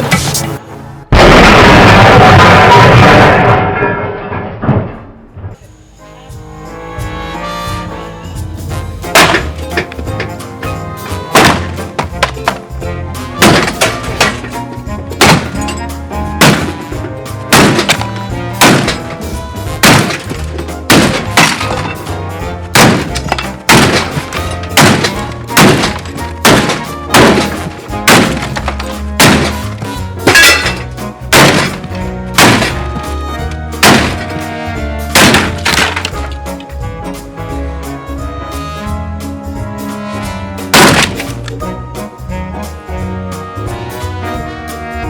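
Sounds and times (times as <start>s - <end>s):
background music: 0.0s - 1.8s, 5.6s - 45.0s
washing machine banging: 9.1s - 12.7s, 13.4s - 34.5s, 35.2s - 36.4s.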